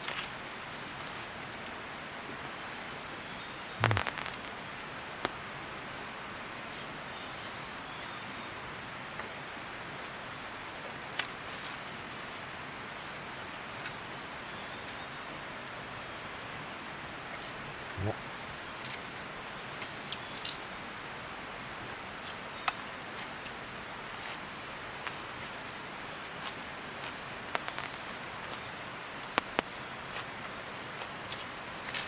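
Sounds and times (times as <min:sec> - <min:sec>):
rushing hiss like rain: 0:00.0 - 0:32.0
faint clicks: 0:03.8 - 0:05.4, 0:26.2 - 0:29.8.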